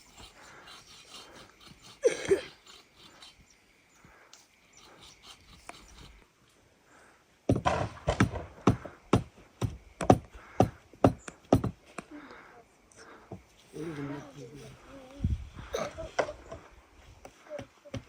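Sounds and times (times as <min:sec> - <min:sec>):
sharp knocks with ringing tone: 0:07.5 - 0:11.8.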